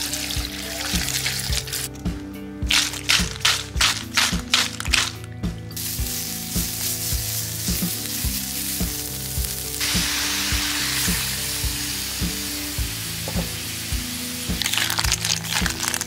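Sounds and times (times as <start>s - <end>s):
background music with beat: 0.0s - 16.0s
paste sizzling in a wok: 2.8s - 16.0s
liquid hissing in hot wok: 5.8s - 15.6s.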